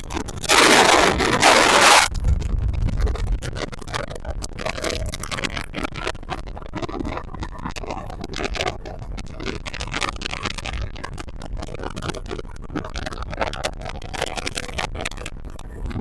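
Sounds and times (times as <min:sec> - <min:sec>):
wind buffeting microphone: 0:00.0 - 0:07.2
low engine rumble: 0:02.1 - 0:04.6.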